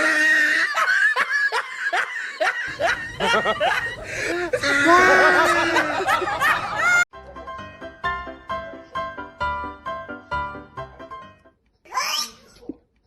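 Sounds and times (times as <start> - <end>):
person laughing hard: 0.3 - 7.0.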